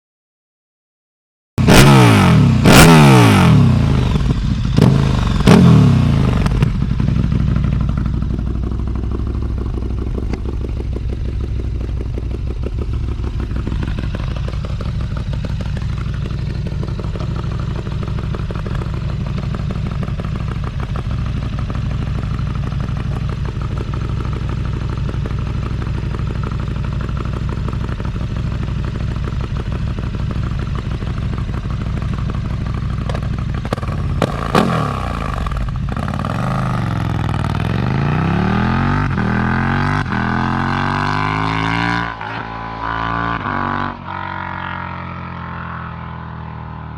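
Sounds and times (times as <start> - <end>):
motorcycle engine revving and idling: 1.6 - 46.9.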